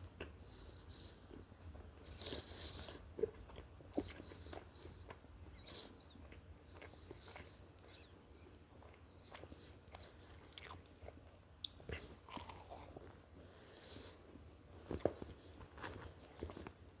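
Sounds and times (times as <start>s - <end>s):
person chewing: 1.3s - 14.2s.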